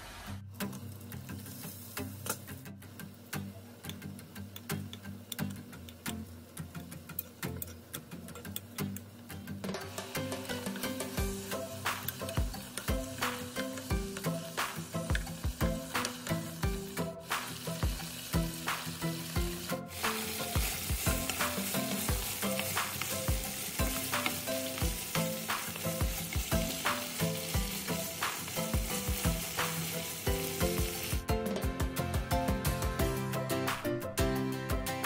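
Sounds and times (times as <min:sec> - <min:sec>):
meat sizzling in a pan: 0:00.0 - 0:03.2, 0:09.8 - 0:31.3
light background music: 0:00.3 - 0:35.0.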